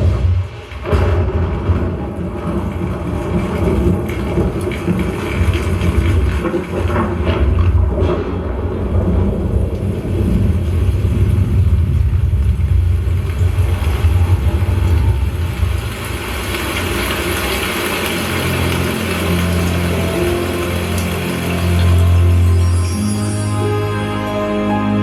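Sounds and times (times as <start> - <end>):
heavy low rumble: 0.0 - 22.4
steady musical tones: 17.8 - 25.0.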